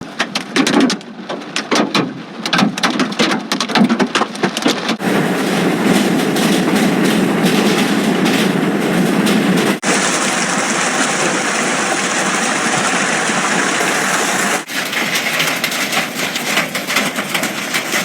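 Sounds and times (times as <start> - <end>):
hailstones clattering: 0.1 - 18.0
heavy rain roaring: 5.0 - 18.0.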